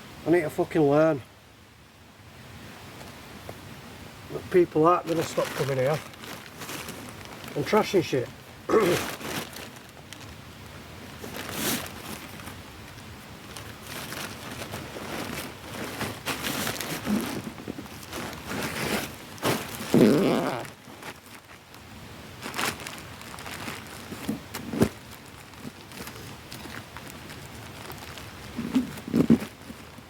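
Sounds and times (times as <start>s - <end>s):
rustling and scraping handling noises: 4.3s - 30.0s.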